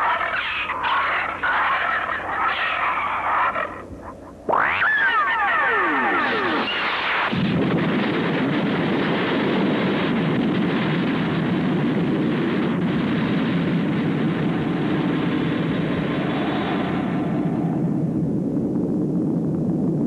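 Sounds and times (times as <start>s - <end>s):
dense rumbling noise: 0.0s - 20.0s
falling whistle sound effect: 4.5s - 6.9s.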